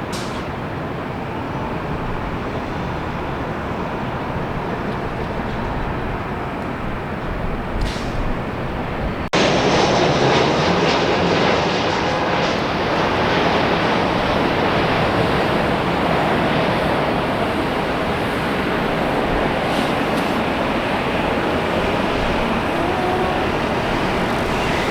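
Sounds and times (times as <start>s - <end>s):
jet engine rushing: 9.3s - 24.9s.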